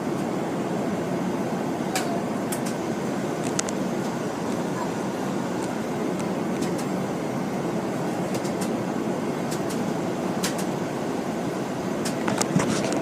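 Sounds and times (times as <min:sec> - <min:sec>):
airliner cabin rumble: 0:00.0 - 0:13.0
faint cabin rattles and clicks: 0:01.9 - 0:07.0, 0:08.2 - 0:08.8, 0:09.4 - 0:10.8, 0:12.0 - 0:13.0.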